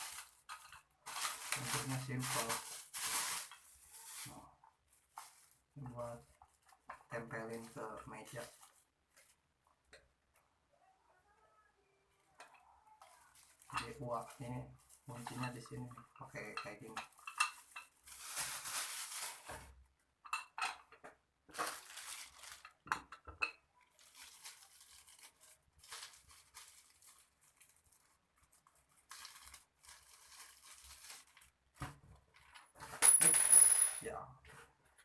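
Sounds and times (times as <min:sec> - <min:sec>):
packaging rustling: 0:00.0 - 0:05.7, 0:17.1 - 0:19.7, 0:21.5 - 0:22.8, 0:23.9 - 0:31.8.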